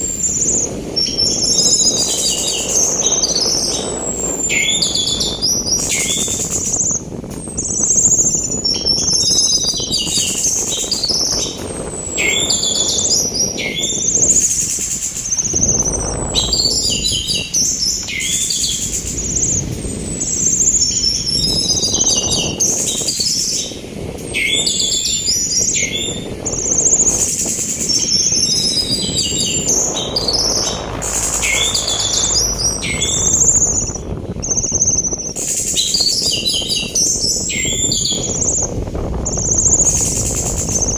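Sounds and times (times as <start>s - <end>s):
sea wind rushing: 0.0s - 40.9s
thrush singing: 11.3s - 23.6s, 27.8s - 36.6s.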